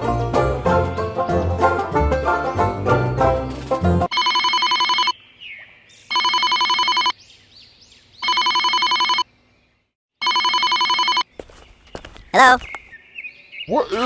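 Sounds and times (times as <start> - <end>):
banjo music: 0.0 - 4.1
electronic telephone ringing: 4.1 - 5.2, 6.1 - 7.1, 8.2 - 9.3, 10.2 - 11.2.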